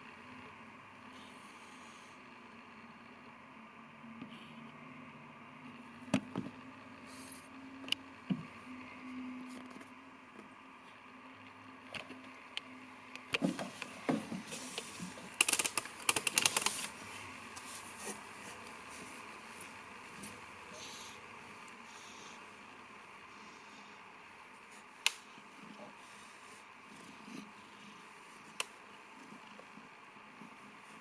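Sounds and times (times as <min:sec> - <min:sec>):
low steady hum: 0:00.0 - 0:31.0
rustling and scratching handling noises: 0:13.2 - 0:20.9.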